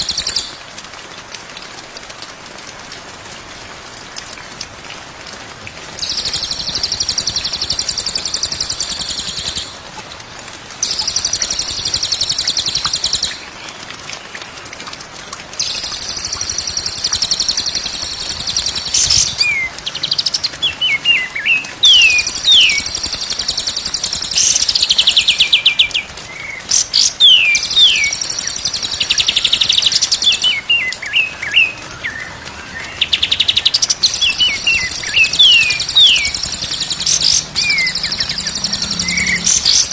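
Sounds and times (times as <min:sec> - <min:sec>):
songbird trilling: 0:32.8 - 0:39.9.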